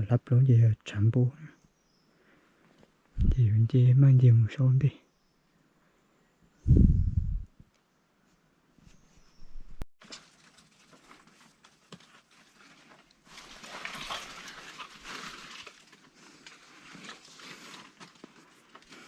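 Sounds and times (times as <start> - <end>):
leaves and branches rustling: 10.0 - 19.0.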